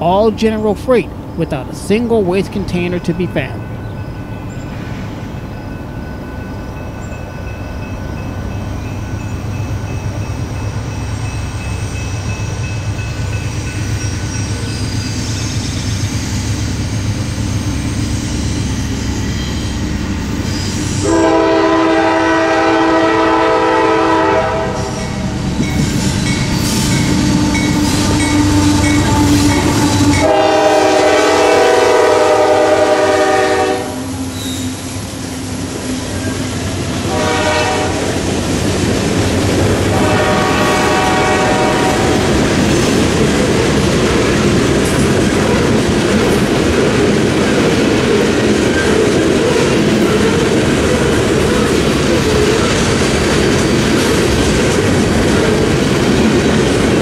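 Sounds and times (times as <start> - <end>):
locomotive engines rumbling: 0.0 - 57.0
train cars clacking over rails: 0.0 - 57.0
train air horn chord: 21.0 - 25.0, 27.8 - 34.1, 37.1 - 38.1, 39.9 - 42.2.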